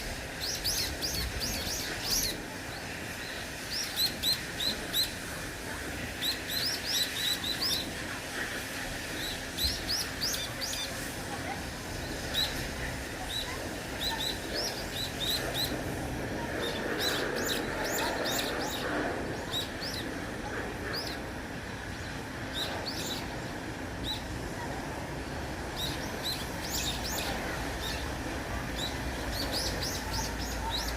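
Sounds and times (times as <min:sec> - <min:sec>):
small songbirds chirping: 0:25.8 - 0:30.9.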